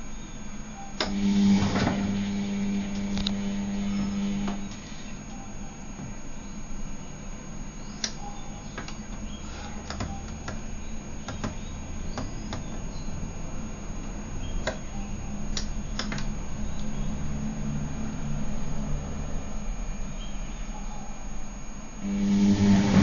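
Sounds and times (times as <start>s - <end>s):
washing machine humming: 0.0s - 23.0s
sharp clicks and knocks: 8.0s - 12.8s, 14.0s - 14.9s, 15.6s - 16.9s.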